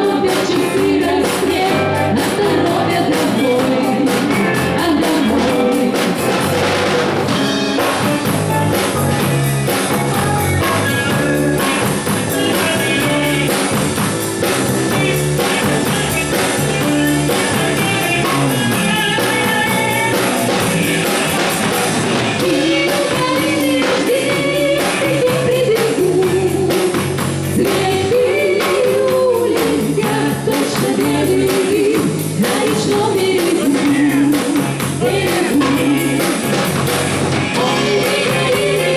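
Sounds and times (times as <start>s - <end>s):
person singing: 0.0s - 9.0s, 10.2s - 13.9s, 22.4s - 36.6s, 37.5s - 38.9s
rock band playing: 0.0s - 38.9s.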